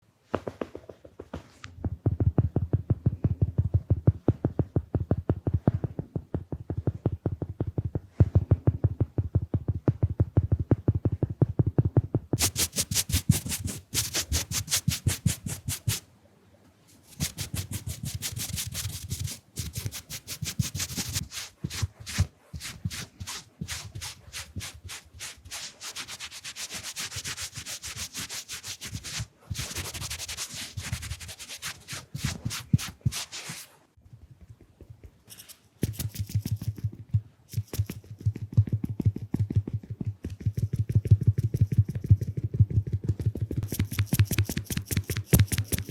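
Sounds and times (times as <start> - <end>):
brushes scratching microphone: 12.4 - 16.0, 16.9 - 33.8, 35.2 - 39.0, 43.6 - 45.9.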